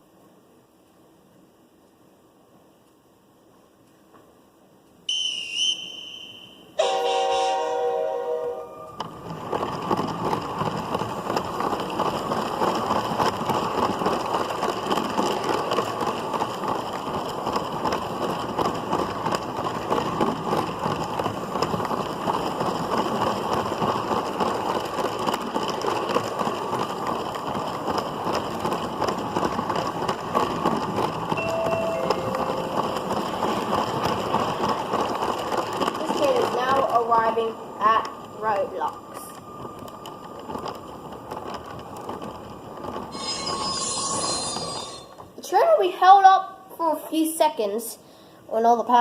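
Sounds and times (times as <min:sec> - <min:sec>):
toy train motor rattling whirr: 0:42.9 - 0:45.2.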